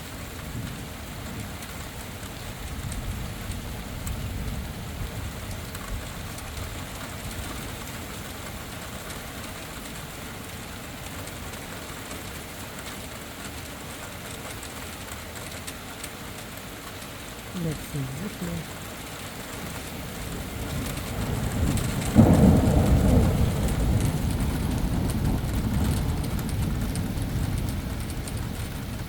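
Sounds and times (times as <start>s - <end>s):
steady rain falling: 0.0s - 29.0s
low rumble of thunder: 0.2s - 10.5s, 19.4s - 29.0s.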